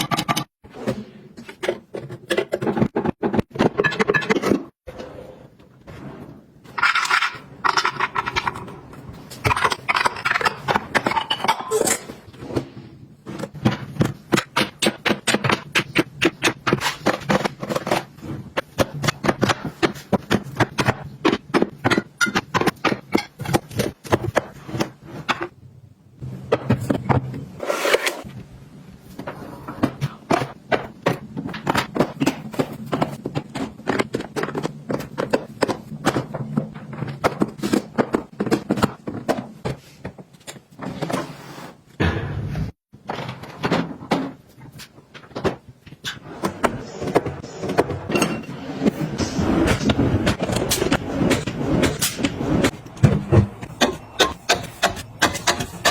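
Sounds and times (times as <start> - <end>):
objects scraping: 26.5 - 28.3.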